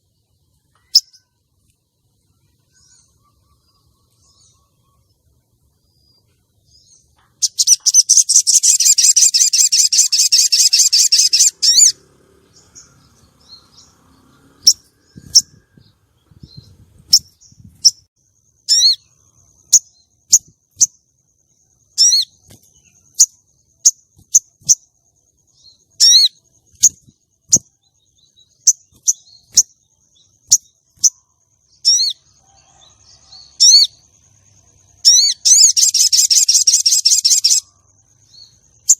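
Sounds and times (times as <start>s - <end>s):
bird rattling trill and calls: 7.2s - 15.6s, 18.7s - 21.0s, 21.9s - 24.9s, 25.8s - 27.8s, 28.4s - 34.1s, 35.0s - 38.9s.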